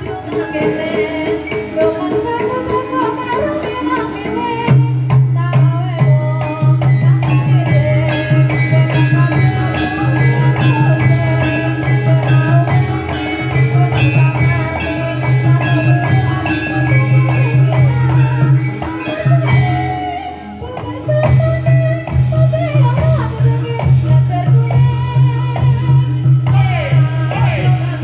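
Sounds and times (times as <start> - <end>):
metallic gamelan percussion: 0.0 - 28.0
wavering melody line: 6.0 - 28.0.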